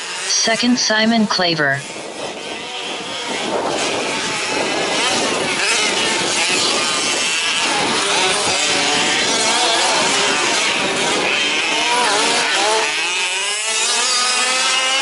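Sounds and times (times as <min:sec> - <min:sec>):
small two-stroke engines revving: 0:00.0 - 0:01.1, 0:01.8 - 0:15.0.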